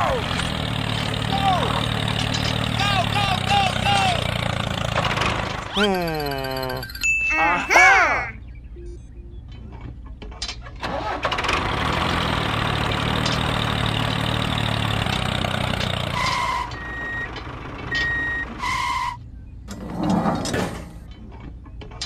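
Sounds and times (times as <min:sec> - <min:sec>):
engine running with low hum: 0:00.0 - 0:06.9, 0:08.4 - 0:22.0
short beeps: 0:08.4 - 0:09.7.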